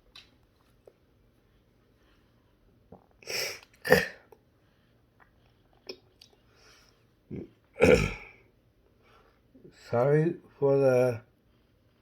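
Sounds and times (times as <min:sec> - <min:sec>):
person sneezing: 0:03.3 - 0:04.3, 0:07.8 - 0:08.4.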